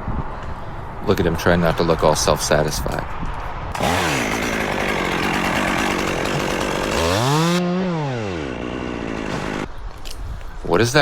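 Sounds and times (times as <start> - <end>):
chainsaw cutting wood: 3.8 - 9.7.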